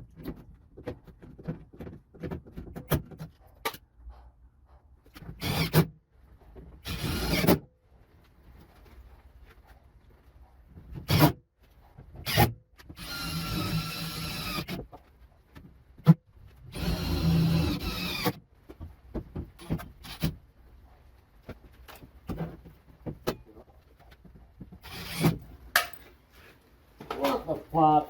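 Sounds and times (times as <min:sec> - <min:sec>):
power drill whining: 0:05.4 - 0:05.8, 0:06.8 - 0:07.5, 0:13.0 - 0:14.8, 0:16.7 - 0:18.4, 0:24.8 - 0:25.4.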